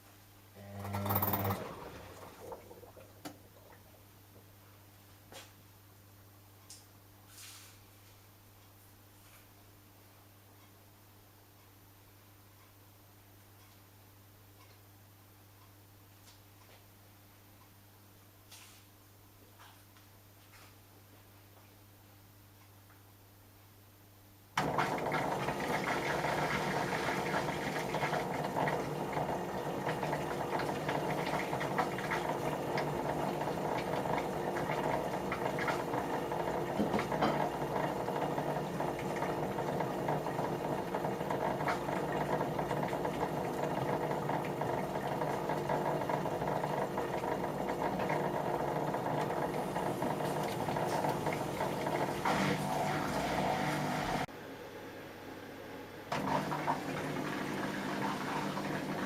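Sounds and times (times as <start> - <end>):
washing machine running: 0.6 - 4.1, 24.6 - 54.3, 56.0 - 59.0.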